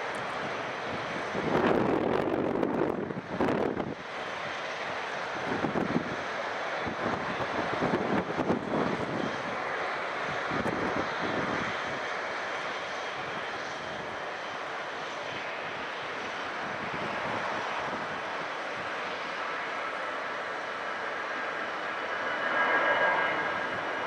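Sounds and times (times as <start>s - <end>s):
jet engines rushing: 0.0s - 24.0s
wind buffeting microphone: 0.2s - 12.2s, 15.3s - 19.2s.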